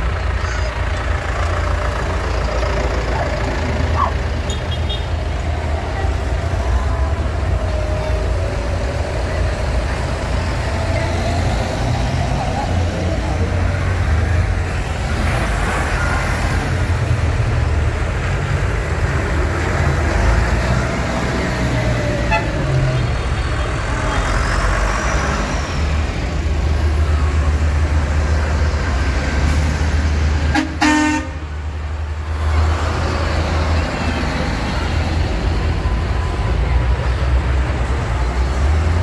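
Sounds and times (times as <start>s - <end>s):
tractor engines running: 0.0s - 39.0s.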